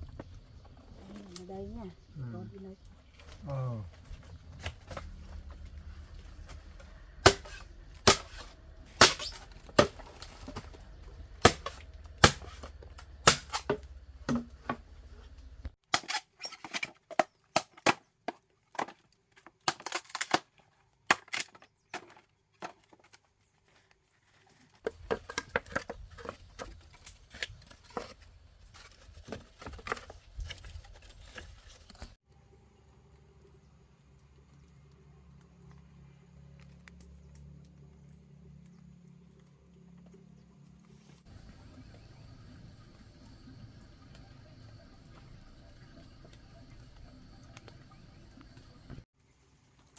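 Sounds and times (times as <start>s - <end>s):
blade chopping bamboo: 7.2s - 10.7s, 11.4s - 14.8s.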